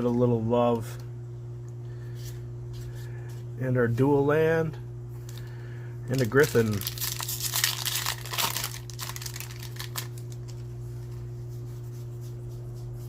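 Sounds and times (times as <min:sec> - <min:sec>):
steady low hum: 0:00.0 - 0:13.0
foil wrapper crinkling and tearing: 0:06.1 - 0:10.7.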